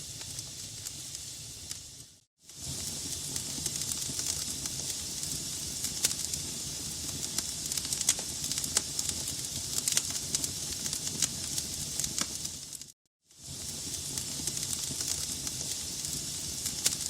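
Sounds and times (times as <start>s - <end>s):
logs burning in fireplace: 0.0s - 17.0s.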